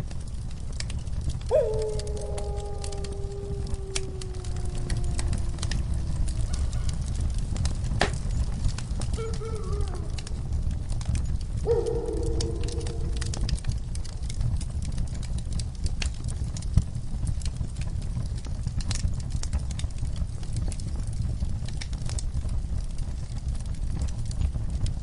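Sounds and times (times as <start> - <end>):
fire popping and snapping: 0.0 - 25.0
low rumble of flames: 0.0 - 25.0
wood fire crackling: 0.0 - 25.0.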